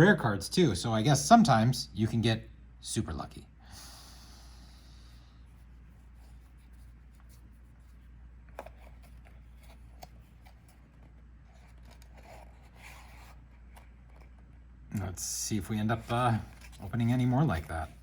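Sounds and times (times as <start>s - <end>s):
low steady hum: 0.0s - 18.0s
trading cards rustling and clicking: 8.4s - 14.5s, 15.9s - 18.0s.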